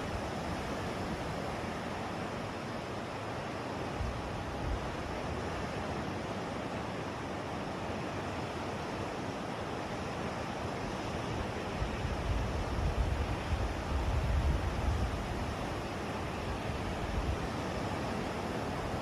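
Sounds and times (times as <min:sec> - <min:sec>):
waves washing in surf: 0:00.0 - 0:19.0
wind buffeting microphone: 0:11.8 - 0:19.0.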